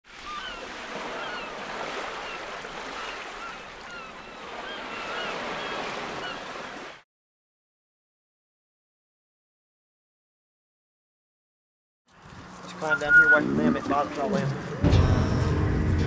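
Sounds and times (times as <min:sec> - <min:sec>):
short high chirps: 0:12.9 - 0:13.4.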